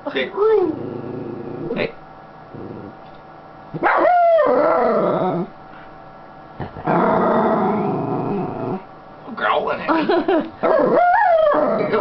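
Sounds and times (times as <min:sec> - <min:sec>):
dog howling growl: 0:00.4 - 0:01.9, 0:02.5 - 0:03.0, 0:03.8 - 0:05.6, 0:06.8 - 0:08.9, 0:10.6 - 0:12.0.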